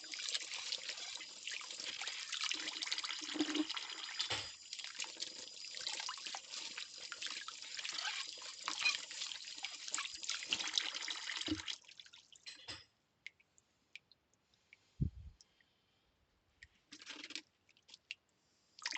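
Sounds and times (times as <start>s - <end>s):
tap water splashing over plates: 1.8s - 4.6s, 5.8s - 13.4s
dishes clinking: 12.5s - 12.9s.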